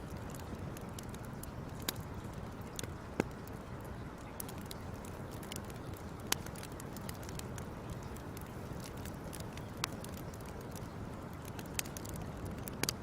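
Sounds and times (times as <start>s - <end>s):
fire crackling: 0.0s - 13.0s
low rumble of fire: 0.0s - 13.0s
sharp pops of fire: 0.1s - 3.5s.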